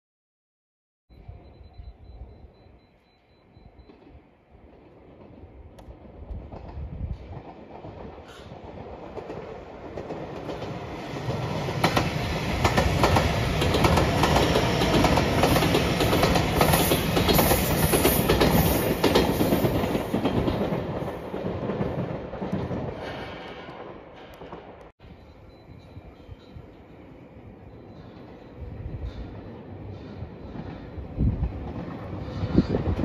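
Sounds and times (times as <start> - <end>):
electric train passing: 1.1 - 33.0
wheels clacking over rail joints: 3.8 - 24.9.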